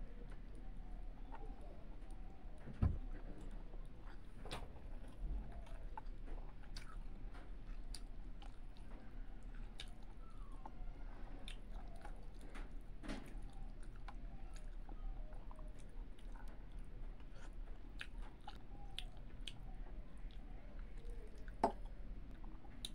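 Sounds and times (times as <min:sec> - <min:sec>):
close-up chewing: 0:00.0 - 0:22.9.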